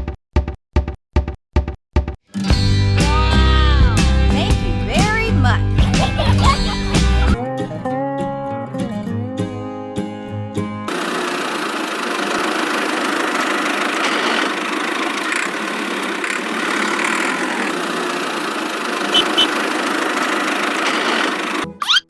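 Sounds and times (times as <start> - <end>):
small motor whirring: 12.4 - 22.0.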